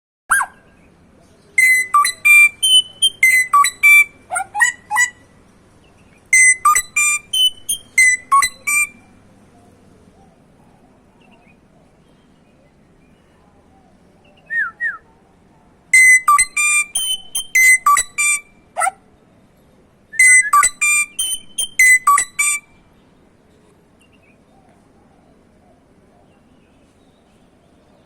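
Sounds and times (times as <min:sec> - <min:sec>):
songbird whistling: 0:01.6 - 0:05.2, 0:06.3 - 0:09.0, 0:14.2 - 0:15.1, 0:15.9 - 0:18.5, 0:20.1 - 0:22.8.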